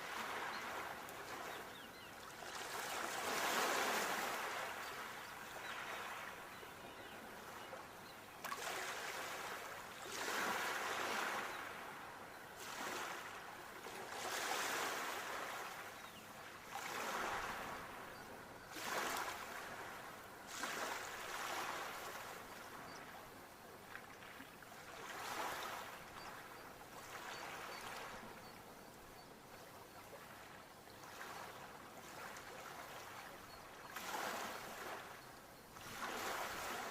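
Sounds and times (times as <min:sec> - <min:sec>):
sea waves breaking on shore: 0:00.0 - 0:06.4, 0:08.4 - 0:22.8, 0:30.2 - 0:35.2, 0:35.8 - 0:36.9.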